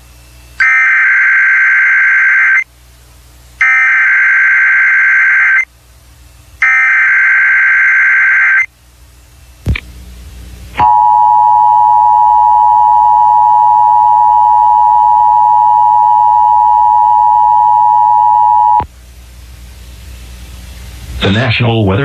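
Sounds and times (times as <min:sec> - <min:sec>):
loud two-tone alarm: 0:00.6 - 0:02.6, 0:03.6 - 0:05.6, 0:06.6 - 0:08.7, 0:10.8 - 0:18.8.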